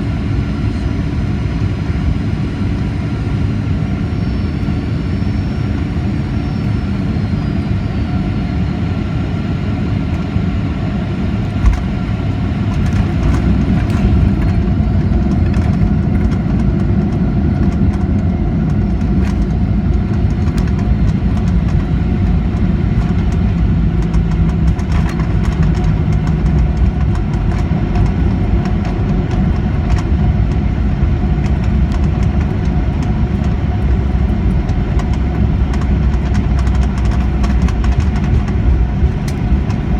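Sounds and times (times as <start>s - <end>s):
aircraft engine and airflow roar: 0.0s - 39.9s
wheels rumbling on runway: 0.0s - 39.9s
landing gear thump: 11.6s - 12.0s.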